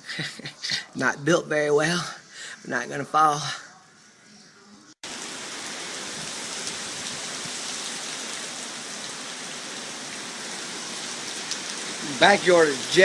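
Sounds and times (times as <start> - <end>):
heavy rain falling: 5.0 - 13.0.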